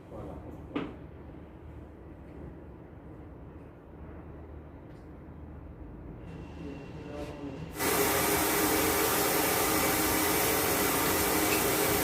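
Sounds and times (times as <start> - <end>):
compressed air hissing: 7.7 - 12.0.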